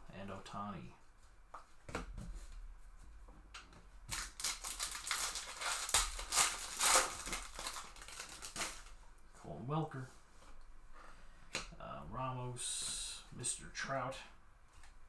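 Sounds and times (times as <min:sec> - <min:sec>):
cards handled: 0:04.1 - 0:09.0
foil wrapper crinkling and tearing: 0:04.1 - 0:09.0.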